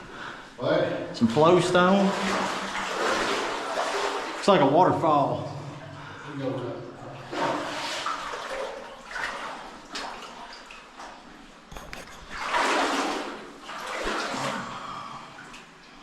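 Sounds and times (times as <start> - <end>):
water sloshing and splashing: 0.0 - 16.0.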